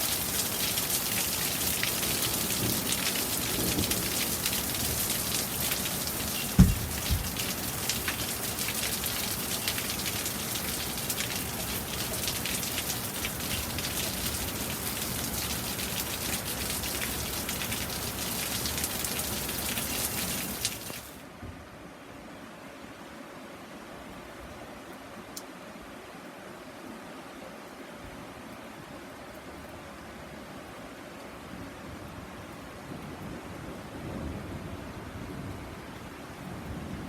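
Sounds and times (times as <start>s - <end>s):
raindrops ticking: 0.0s - 21.2s
steady rain falling: 0.0s - 37.0s
low thumps: 6.6s - 7.4s.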